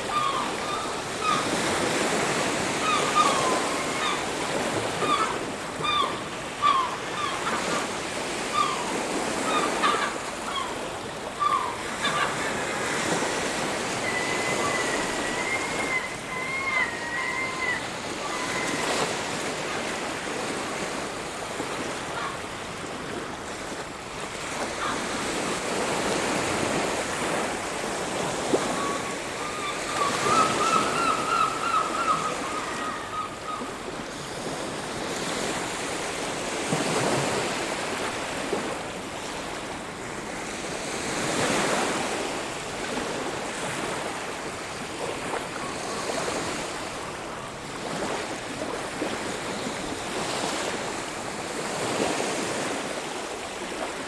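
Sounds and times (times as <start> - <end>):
bird calling: 0.0 - 20.9, 28.0 - 34.4
ocean waves on a beach: 0.0 - 54.0.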